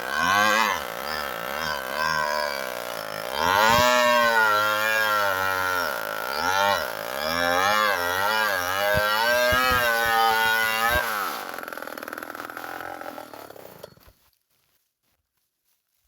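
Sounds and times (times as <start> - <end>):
chainsaw cutting: 0.0 - 14.1
sharp knocks: 8.9 - 10.2.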